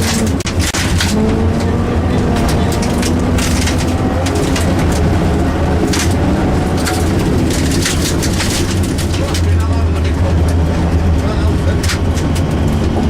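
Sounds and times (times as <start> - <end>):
car clattering and knocking: 0.0 - 13.0
car engine droning: 0.0 - 13.0.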